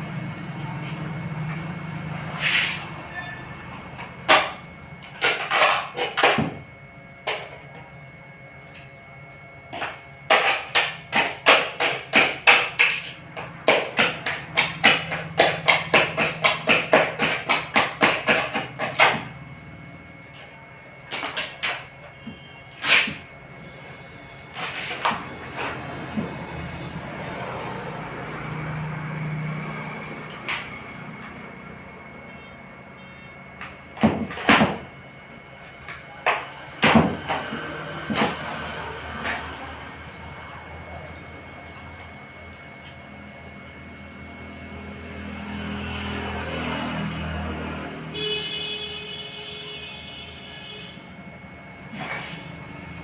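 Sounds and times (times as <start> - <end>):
hand tool strokes: 2.3 - 3.4.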